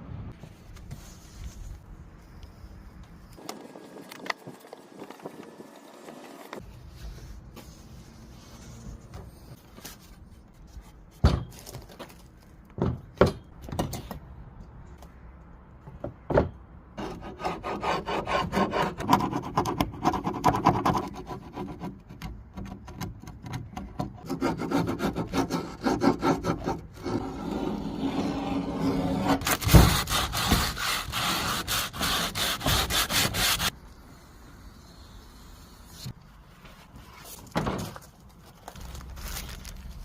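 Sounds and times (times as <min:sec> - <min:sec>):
sanding wood surface: 0:24.3 - 0:33.7.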